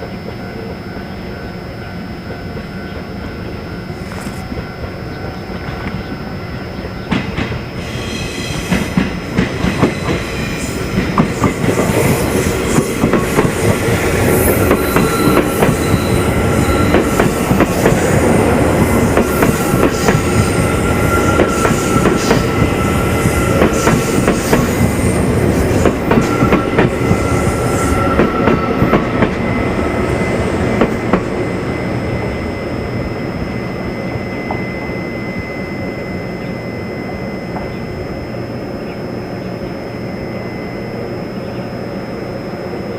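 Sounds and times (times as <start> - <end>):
train wheels clattering over rails: 8.5 - 29.5
high-pitched wheel squeals: 13.6 - 18.2, 18.9 - 38.2.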